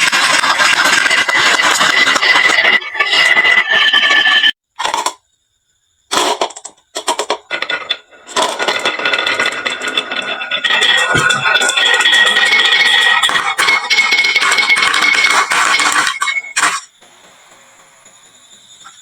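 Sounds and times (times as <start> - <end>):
marbles rattling down wooden run: 0.0 - 4.4, 6.2 - 16.8.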